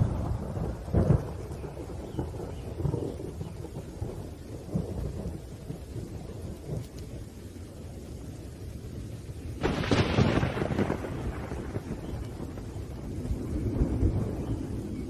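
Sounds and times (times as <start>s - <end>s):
rain: 0.0s - 15.0s
thunder rumbling: 0.0s - 15.0s
loud thunder crack: 9.6s - 15.0s.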